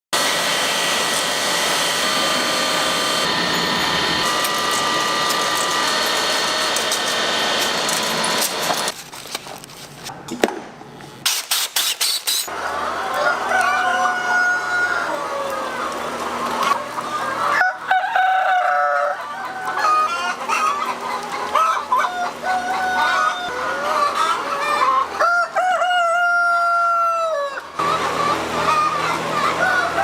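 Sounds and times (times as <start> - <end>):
whining tones: 0.2 - 8.9
machinery clattering: 0.2 - 9.0.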